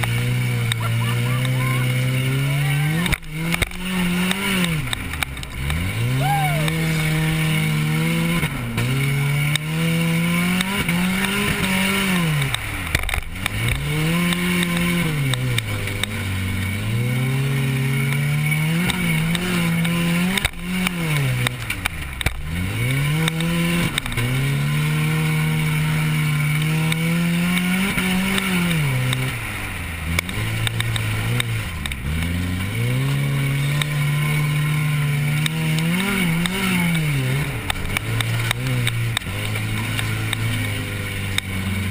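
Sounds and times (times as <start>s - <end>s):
race car engine revving: 0.0s - 41.9s.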